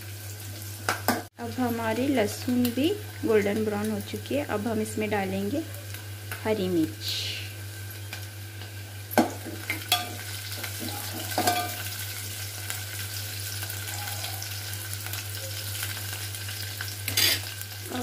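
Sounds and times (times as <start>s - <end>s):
vegetables sizzling in hot oil: 0.0s - 18.0s
spoon knocking against pot: 10.8s - 11.8s.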